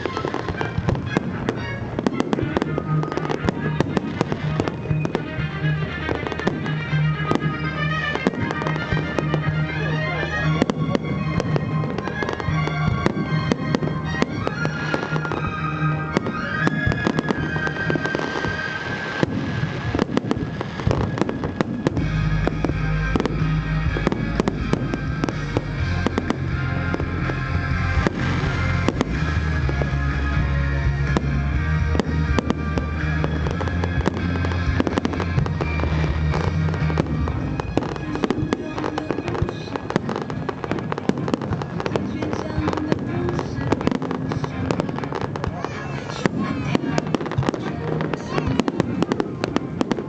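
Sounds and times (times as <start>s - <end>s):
fireworks bangs and crackles: 0.0s - 50.0s
music playing: 0.0s - 50.0s.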